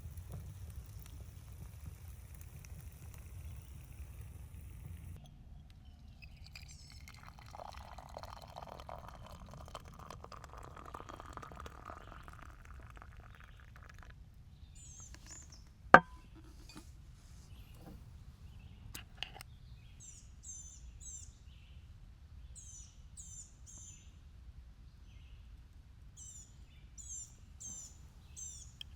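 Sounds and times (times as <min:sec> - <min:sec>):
liquid pouring: 0:00.0 - 0:05.2, 0:06.0 - 0:14.2, 0:15.0 - 0:16.8.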